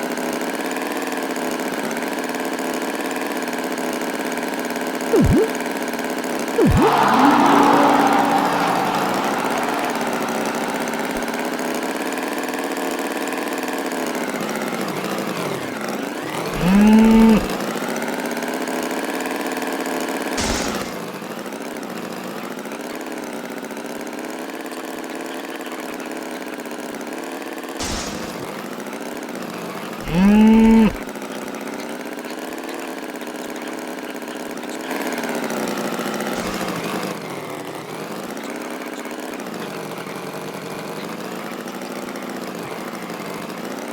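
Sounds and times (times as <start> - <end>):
bull mooing: 16.6 - 17.6, 30.0 - 31.0.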